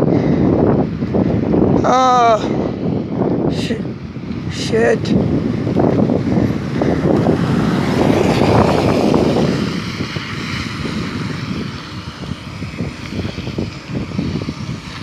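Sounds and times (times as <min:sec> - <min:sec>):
moving vehicle noise: 0:00.0 - 0:15.0
wind rushing over microphone: 0:00.0 - 0:15.0.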